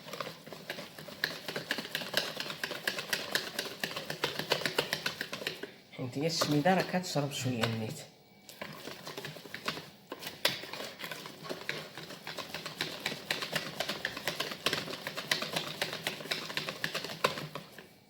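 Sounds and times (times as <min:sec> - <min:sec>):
utensil clicking against bowl: 0:00.7 - 0:05.7.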